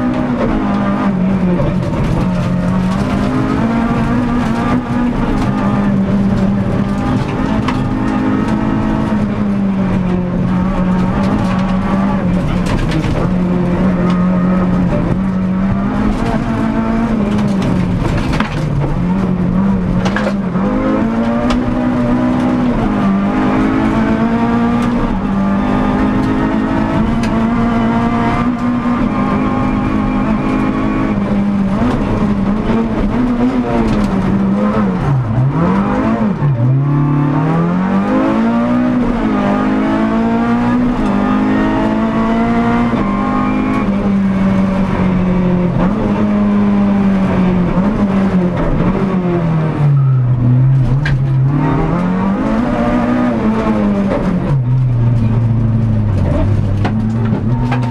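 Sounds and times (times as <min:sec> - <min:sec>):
rally car engine at high revs: 0:00.0 - 0:57.9.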